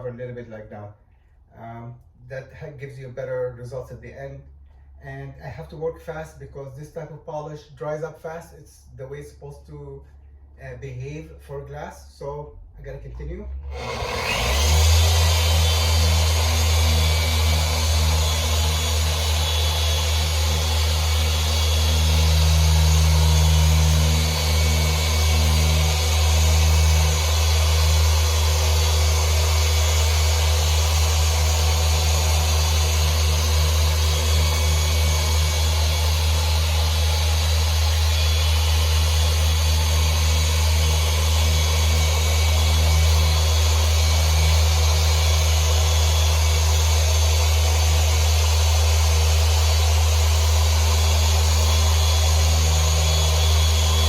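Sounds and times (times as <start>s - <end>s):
electric polisher motor hum: 13.7s - 54.0s.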